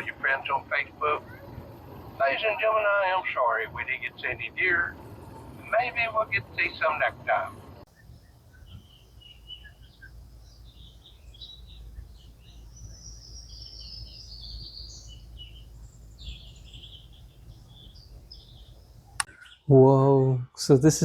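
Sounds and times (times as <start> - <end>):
steady low rumble: 0.0 - 19.3
birds chirping and singing: 0.0 - 19.9
falling bird trill: 7.9 - 19.7.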